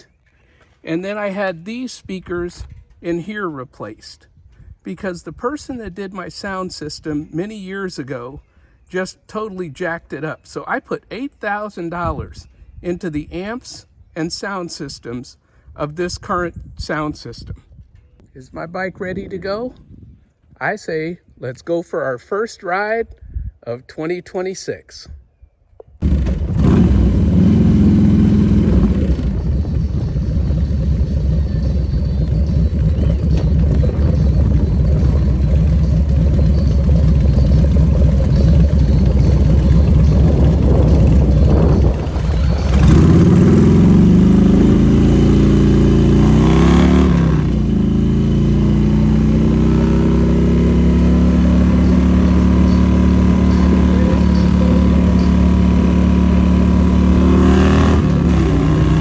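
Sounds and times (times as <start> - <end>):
motorcycle engine running: 26.0 - 59.0.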